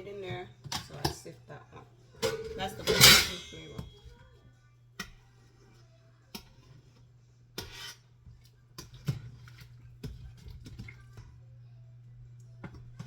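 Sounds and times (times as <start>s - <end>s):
kitchen utensils clinking: 2.2s - 4.2s.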